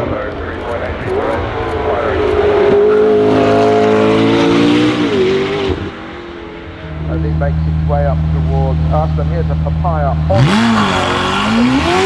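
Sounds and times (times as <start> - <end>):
sports car accelerating past: 0.0 - 7.8.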